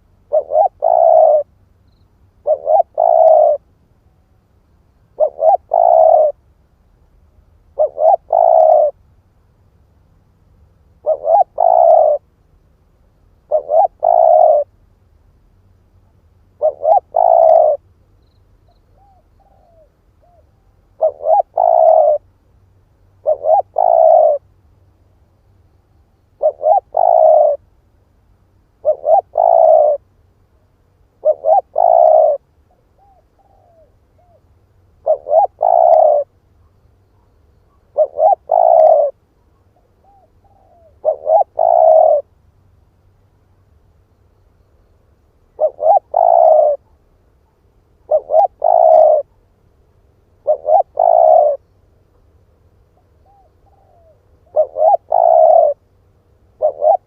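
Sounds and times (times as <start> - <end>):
dove cooing: 0.0 - 1.5, 2.4 - 3.7, 5.1 - 6.4, 7.7 - 9.0, 11.0 - 12.3, 13.4 - 14.7, 16.6 - 17.9, 18.8 - 22.3, 23.2 - 24.5, 26.3 - 27.6, 28.8 - 30.1, 31.2 - 42.3, 45.5 - 49.4, 50.4 - 51.8, 53.0 - 57.0.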